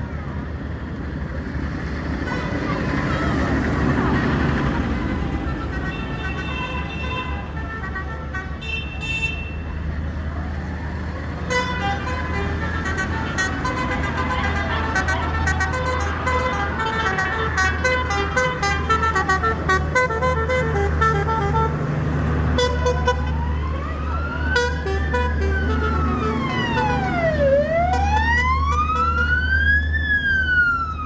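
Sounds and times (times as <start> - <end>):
low engine hum: 10.0 - 31.0
siren wailing: 22.5 - 31.0.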